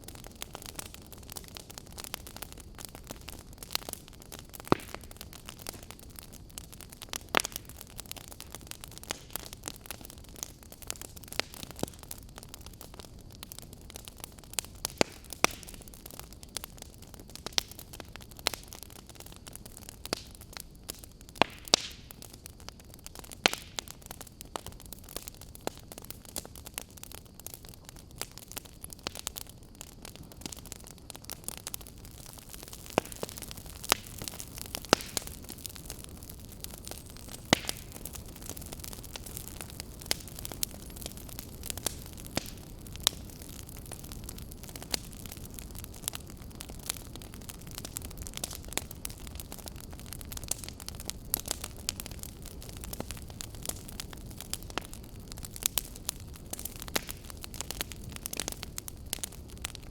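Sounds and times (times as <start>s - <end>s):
burning logs crackling and popping: 0.0s - 59.9s
fire flames rushing: 29.0s - 59.9s.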